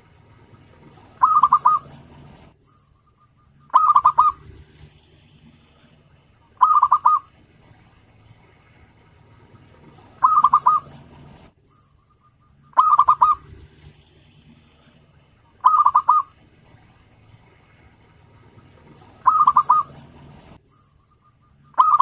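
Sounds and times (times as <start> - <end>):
dove cooing: 0.4 - 7.5, 8.4 - 20.6, 21.2 - 22.0.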